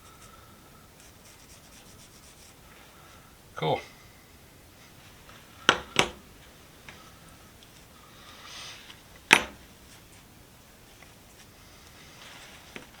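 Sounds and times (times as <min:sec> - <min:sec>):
soft rub: 0:00.0 - 0:03.2, 0:06.4 - 0:13.0.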